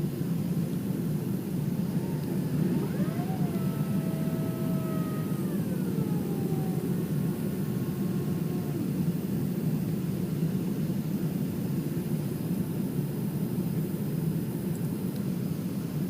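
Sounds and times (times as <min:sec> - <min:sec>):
jet engine and airflow roar: 0:00.0 - 0:16.0
engine whine gliding down: 0:01.4 - 0:10.2.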